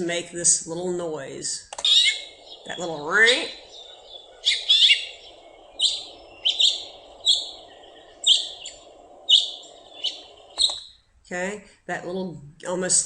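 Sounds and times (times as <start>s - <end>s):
faint steady hum: 0.0s - 13.0s
finch chirps: 1.8s - 11.0s.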